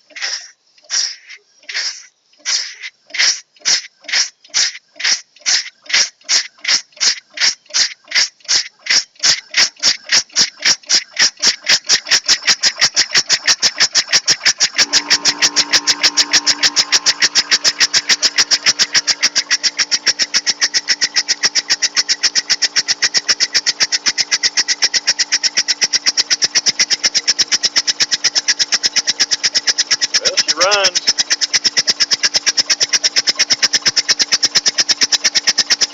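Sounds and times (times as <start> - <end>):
steam engine exhaust chuffs: 0.0 - 35.9
steady hum: 14.8 - 26.5, 30.2 - 31.2.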